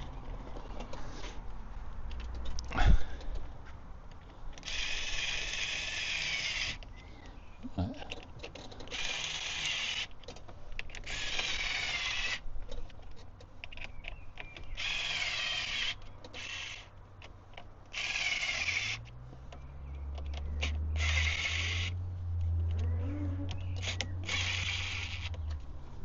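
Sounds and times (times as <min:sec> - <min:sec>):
low steady hum: 0:05.9 - 0:08.4
power drill bursts: 0:14.8 - 0:16.8, 0:21.0 - 0:21.9, 0:23.8 - 0:25.3.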